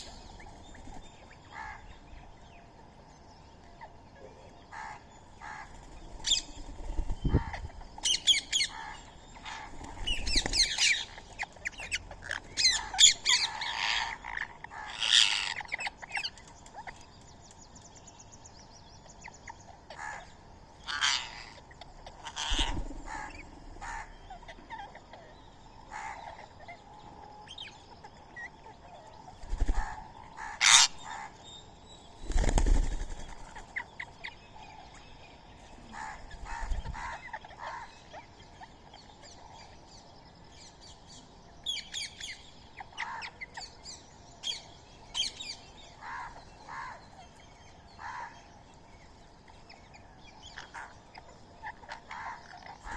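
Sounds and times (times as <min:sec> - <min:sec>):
birds chirping: 0:00.0 - 0:52.9
wings flapping: 0:09.6 - 0:11.0, 0:29.4 - 0:30.0, 0:32.2 - 0:33.8.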